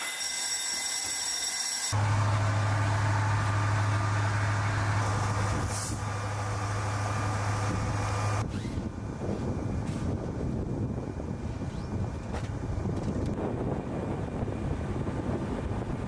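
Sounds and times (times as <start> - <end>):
low engine hum: 2.0 - 16.0
rough wind-like noise: 5.0 - 16.0.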